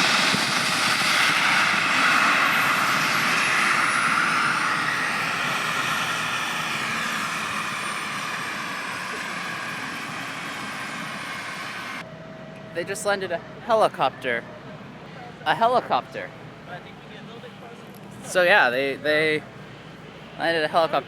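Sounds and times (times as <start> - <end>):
helicopter engine and rotor: 0.0 - 12.5.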